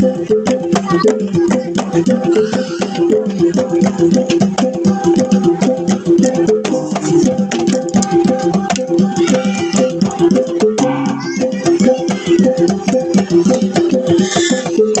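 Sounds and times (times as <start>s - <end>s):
sharp percussive strikes: 0.2s - 14.1s
gong ensemble playing: 10.8s - 11.9s.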